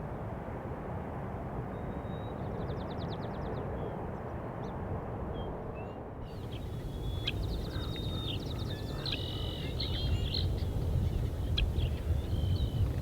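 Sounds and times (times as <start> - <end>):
songbird singing and trilling: 6.4 - 13.0.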